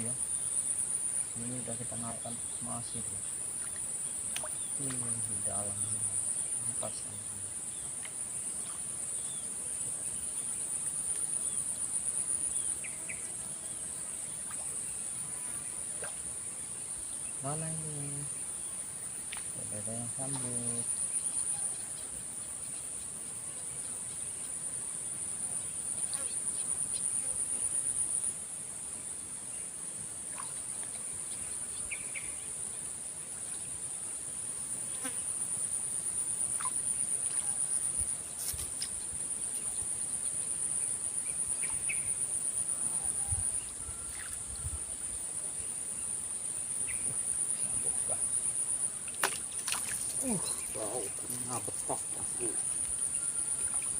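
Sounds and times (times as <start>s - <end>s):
insects chirring: 0.0s - 53.9s.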